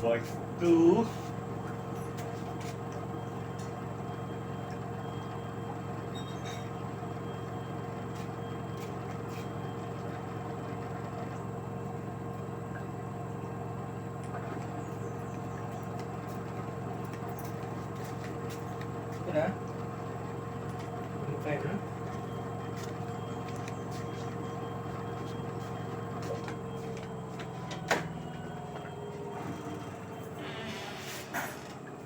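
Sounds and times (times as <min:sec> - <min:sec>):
washing machine humming: 0:00.0 - 0:32.0.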